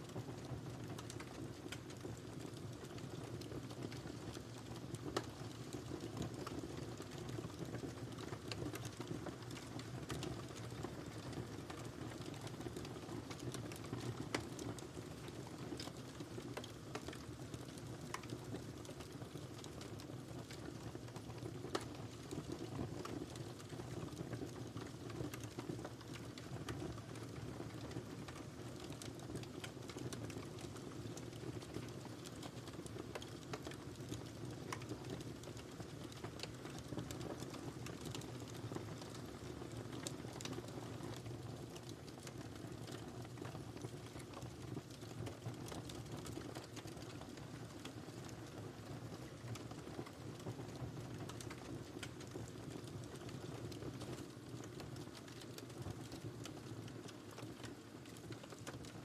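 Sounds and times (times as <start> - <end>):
fire crackles and pops: 0.0 - 59.0
low rumble of flames: 0.0 - 59.0.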